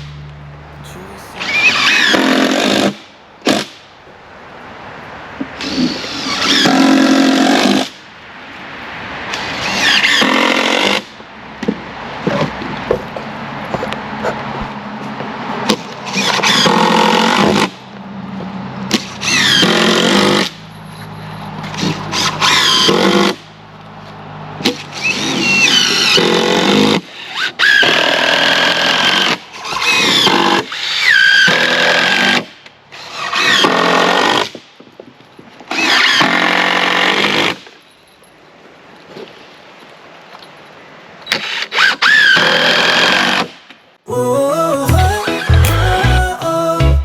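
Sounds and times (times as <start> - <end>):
squeal: 20.7 - 21.5.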